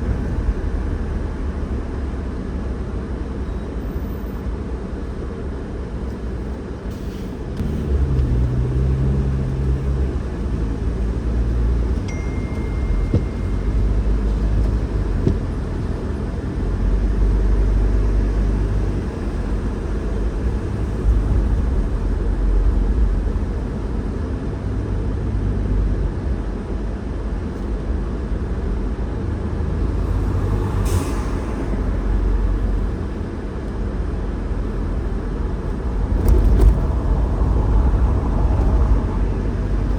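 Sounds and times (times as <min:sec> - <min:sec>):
car road and engine rumble: 0:00.0 - 0:39.9
brief high tone: 0:12.0 - 0:14.5.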